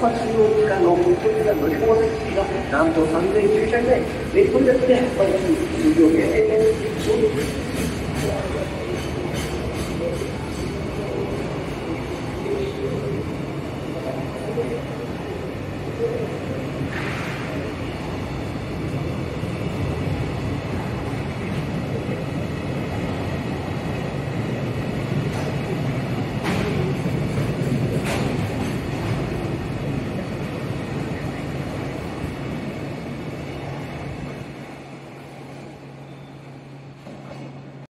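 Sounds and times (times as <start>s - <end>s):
freight train wheels on rails: 0.0s - 37.9s.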